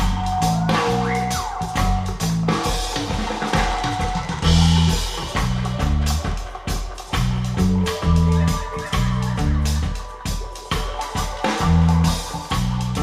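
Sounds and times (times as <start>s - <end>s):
deep pulsing bass line: 0.0s - 2.7s, 4.4s - 6.3s, 7.2s - 10.0s, 11.5s - 13.0s.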